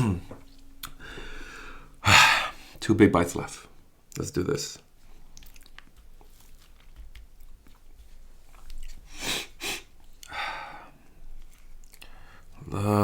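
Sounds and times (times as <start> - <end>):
close chewing with wet mouth clicks: 5.3 - 9.0, 11.4 - 12.2.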